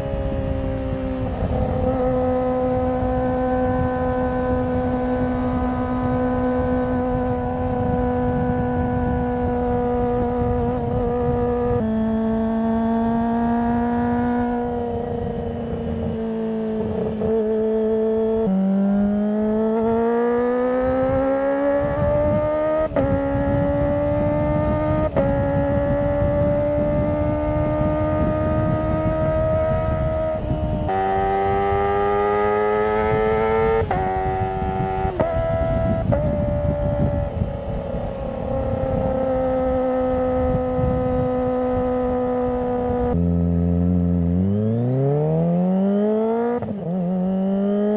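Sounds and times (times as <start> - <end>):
motorcycle engine revving high: 0.0 - 47.9.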